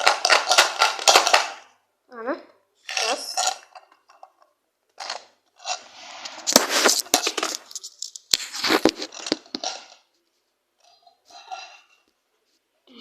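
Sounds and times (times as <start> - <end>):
plastic container scraping and rustling: 5.0 - 10.1.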